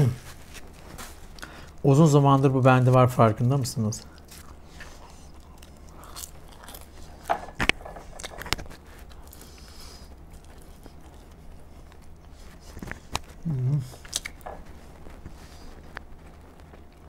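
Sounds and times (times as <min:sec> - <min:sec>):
chewing and biting food: 0:04.0 - 0:17.0.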